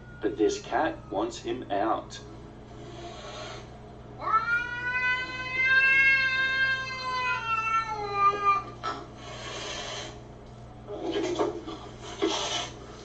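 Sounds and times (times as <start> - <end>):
cat hissing: 2.8 - 10.2, 10.9 - 12.9
cat yowling: 3.0 - 8.8.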